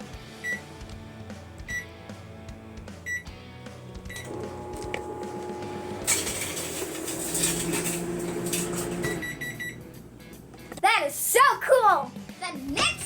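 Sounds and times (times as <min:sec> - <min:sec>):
microwave keypad beep: 0:00.4 - 0:00.6, 0:03.1 - 0:03.3, 0:04.1 - 0:06.1, 0:08.8 - 0:10.0
microwave oven humming: 0:04.1 - 0:11.3
loud electrical arcing crackle: 0:04.2 - 0:09.3
short end-of-cycle beeps: 0:09.0 - 0:09.9.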